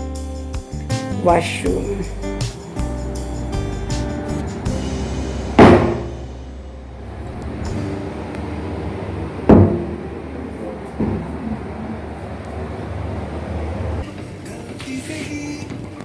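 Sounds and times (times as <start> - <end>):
door banging: 2.5 - 7.8, 9.5 - 10.0.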